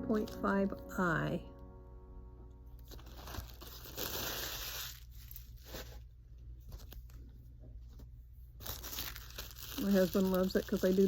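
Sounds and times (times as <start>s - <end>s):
packaging tearing and crinkling: 2.9s - 7.2s, 8.6s - 11.0s.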